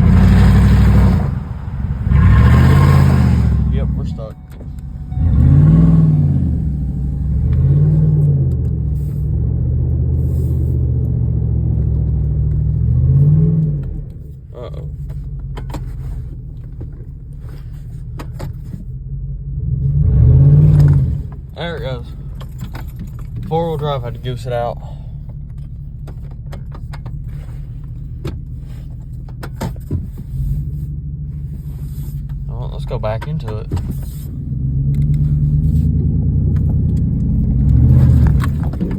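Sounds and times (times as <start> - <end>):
truck engine revving: 0.0 - 14.0, 19.6 - 22.2, 34.1 - 38.9
sharp clicks and rattles: 20.8 - 24.1, 32.3 - 38.9.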